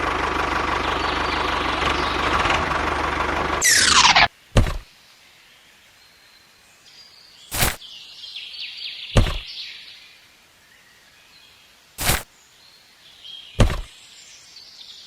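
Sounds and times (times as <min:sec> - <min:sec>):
falling whistle-like glide: 0:03.6 - 0:04.3
sharp thumps: 0:03.6 - 0:04.8, 0:07.5 - 0:07.8, 0:09.2 - 0:09.5, 0:12.0 - 0:12.2, 0:13.6 - 0:13.9.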